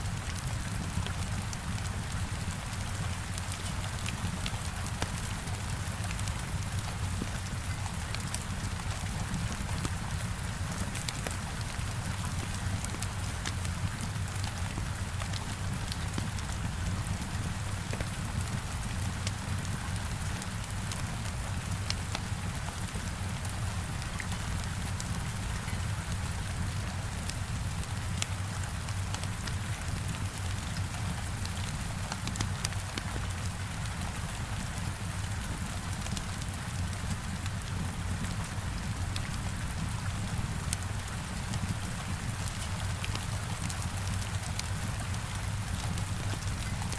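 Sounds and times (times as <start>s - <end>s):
heavy rain on window: 0.0s - 46.9s
wood fire crackling: 26.7s - 46.9s.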